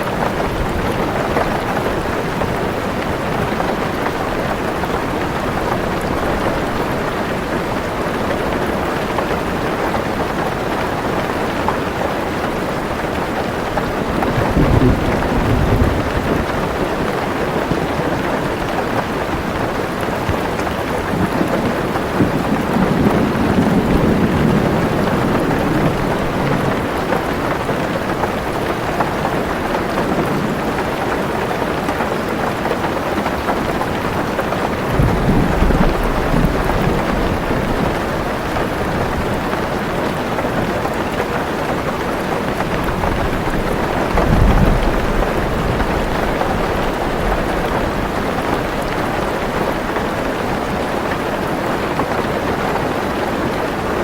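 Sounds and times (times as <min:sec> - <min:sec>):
heavy rain on car roof: 0:00.0 - 0:54.0
deep thunder rumbling: 0:13.6 - 0:18.0, 0:20.3 - 0:28.5, 0:33.6 - 0:40.4, 0:42.2 - 0:49.9.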